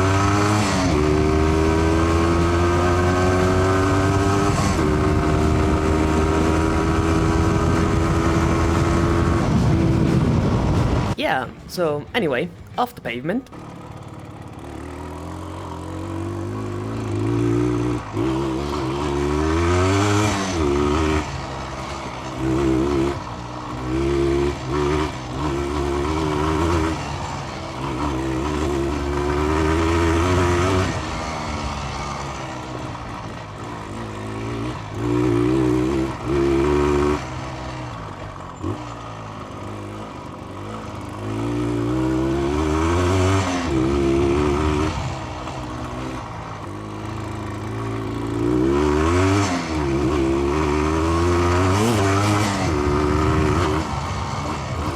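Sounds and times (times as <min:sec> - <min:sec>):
two-stroke motorcycle engine revving: 0:00.0 - 0:11.7, 0:13.4 - 0:54.9.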